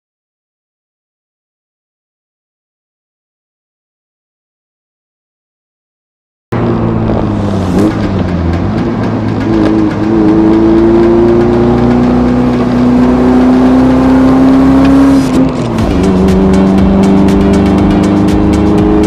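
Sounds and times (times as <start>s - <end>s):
car engine accelerating: 6.5s - 19.0s.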